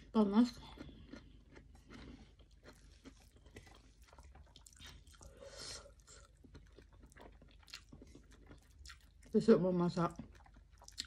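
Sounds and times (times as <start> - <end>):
faint chewing: 0.0 - 11.0.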